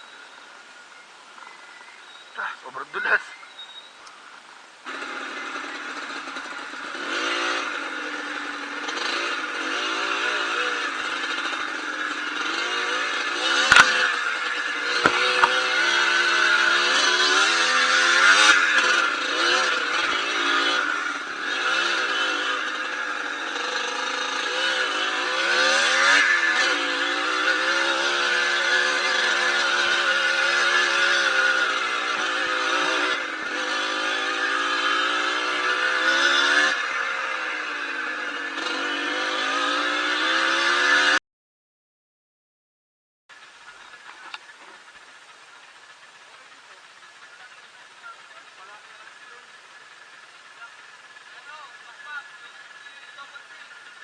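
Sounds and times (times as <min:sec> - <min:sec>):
dirt bike engine revving: 0:04.8 - 0:41.2, 0:43.4 - 0:54.0
sharp knocks: 0:13.6 - 0:14.0, 0:15.0 - 0:15.6.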